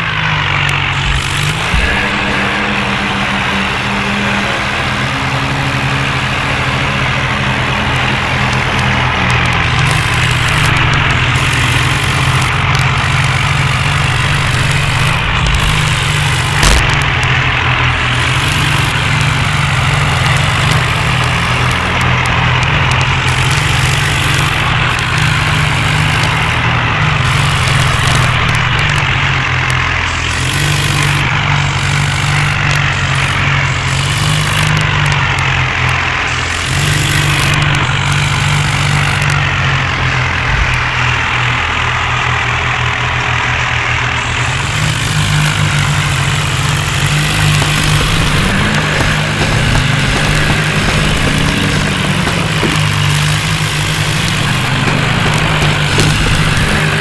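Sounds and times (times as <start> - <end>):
tractor diesel engine running: 0.0 - 57.0
sharp click: 5.8 - 39.8.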